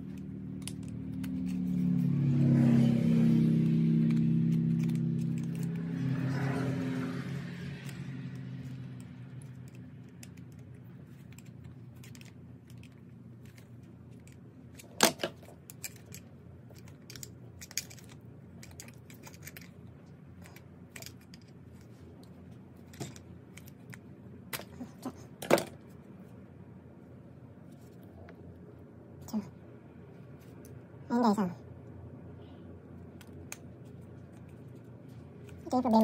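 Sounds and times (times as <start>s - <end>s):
low hum: 0.0s - 36.0s.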